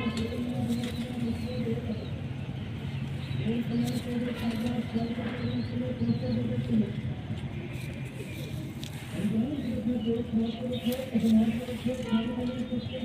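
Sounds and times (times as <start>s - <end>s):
pigeons cooing: 0.0s - 2.3s.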